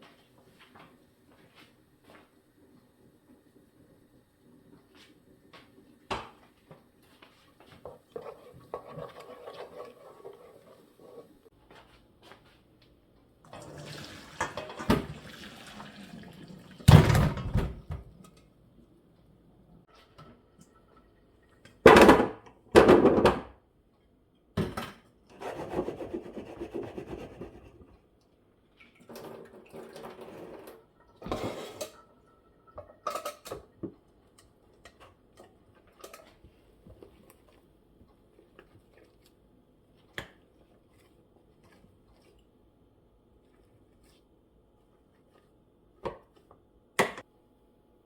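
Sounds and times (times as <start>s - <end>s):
dishes scraping: 7.9s - 11.4s, 29.2s - 33.7s
dishes and utensils clattering: 29.0s - 33.9s.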